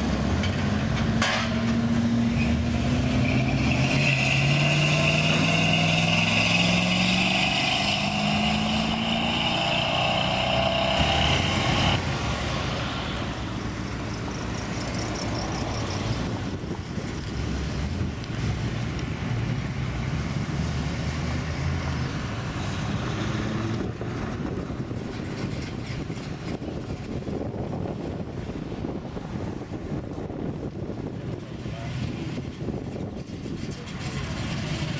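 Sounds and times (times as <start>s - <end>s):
cars driving past: 0.0s - 26.5s
car engine accelerating away: 2.6s - 12.2s.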